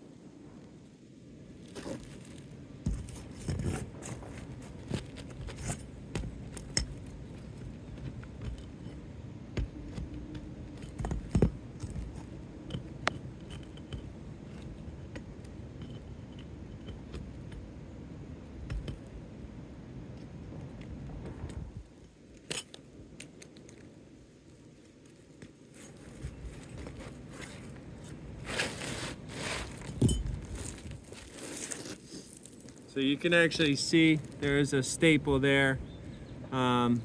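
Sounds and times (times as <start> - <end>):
tool scraping roof shingles: 2.9 - 15.0, 25.8 - 32.5.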